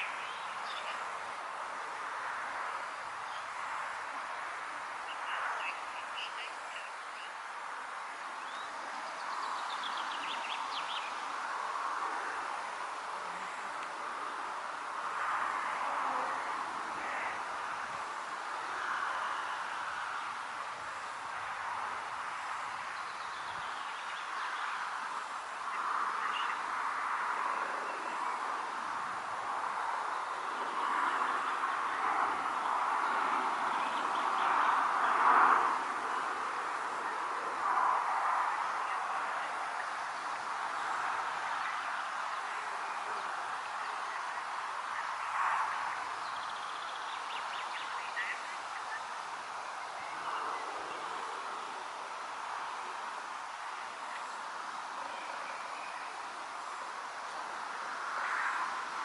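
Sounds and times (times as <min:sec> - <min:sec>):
wind rustling vegetation: 0:00.0 - 0:59.0
frog chorus: 0:05.0 - 0:07.4, 0:13.2 - 0:51.8, 0:57.5 - 0:59.0.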